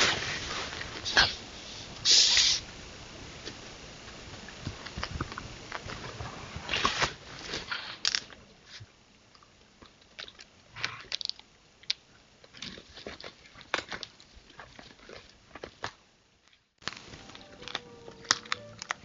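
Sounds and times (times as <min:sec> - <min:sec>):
animals crunching bones: 0:04.4 - 0:19.0.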